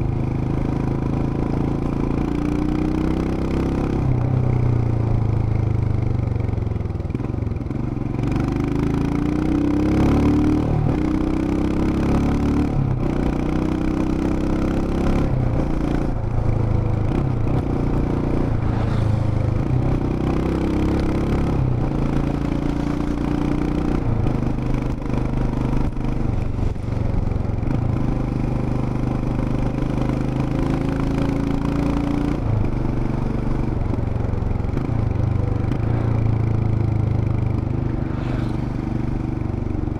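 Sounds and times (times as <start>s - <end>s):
motorcycle engine revving: 7.1s - 39.9s.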